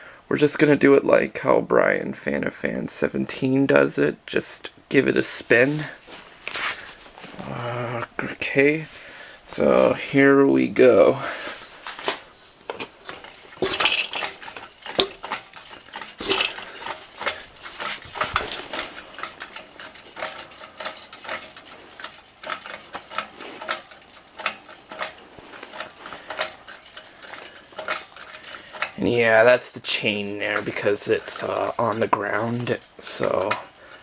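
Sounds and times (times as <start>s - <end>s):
metal pull chain clinking: 12.8s - 34.0s.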